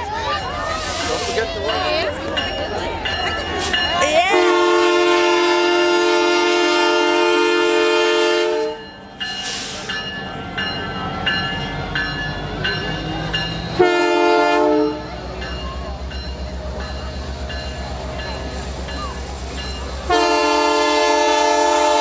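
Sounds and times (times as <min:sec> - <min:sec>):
train rumble: 0:00.0 - 0:22.0
locomotive bell ringing: 0:01.2 - 0:22.0
locomotive air horn: 0:04.3 - 0:08.8, 0:13.8 - 0:15.1, 0:20.1 - 0:22.0.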